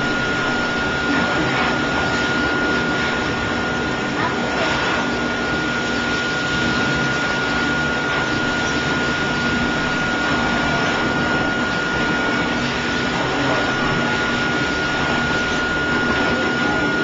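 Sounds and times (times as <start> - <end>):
blow dryer air rushing: 0.0 - 17.0
motor high whine: 0.0 - 17.0.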